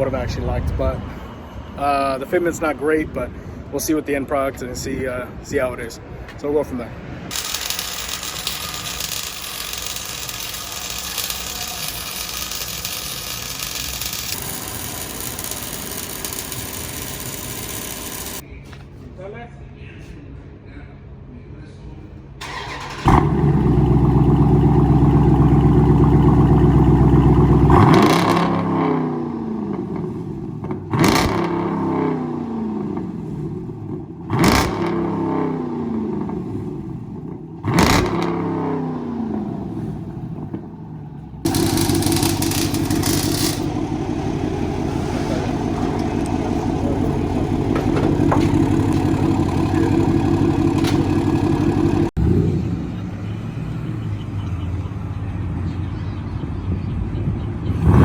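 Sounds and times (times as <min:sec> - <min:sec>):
car engine idling and revving: 0:07.2 - 0:18.4, 0:22.4 - 0:56.2, 0:57.6 - 0:58.0.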